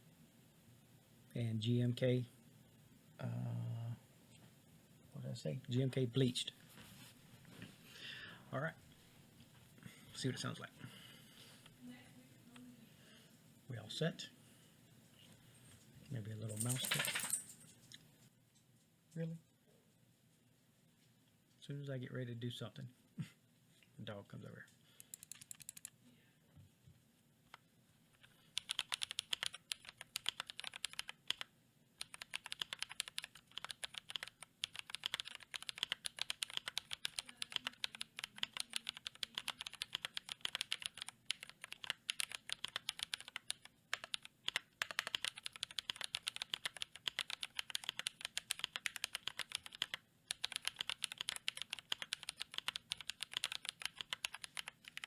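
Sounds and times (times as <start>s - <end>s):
typing on mechanical keyboard: 25.0s - 25.9s, 28.2s - 55.0s.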